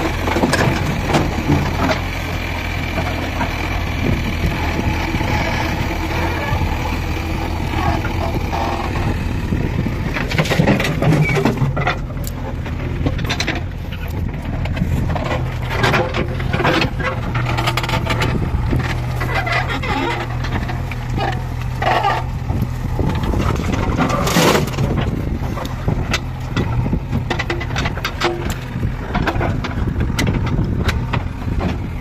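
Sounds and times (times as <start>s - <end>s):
knocks and clanks: 0.0s - 4.8s, 10.1s - 22.3s, 22.9s - 32.0s
diesel engine running: 0.0s - 32.0s.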